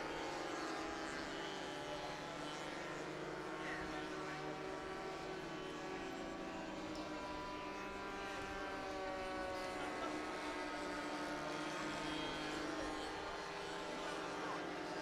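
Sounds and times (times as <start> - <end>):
model aircraft engines buzzing: 0.1 - 15.0.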